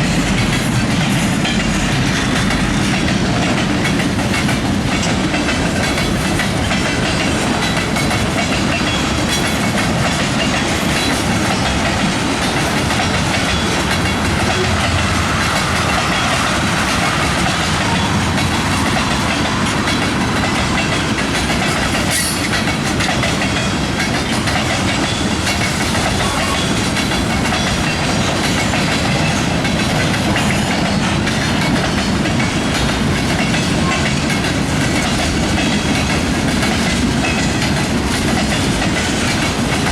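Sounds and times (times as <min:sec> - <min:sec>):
freight train rumble: 0:00.0 - 0:39.9
wheels clicking over rail joints: 0:00.0 - 0:39.9.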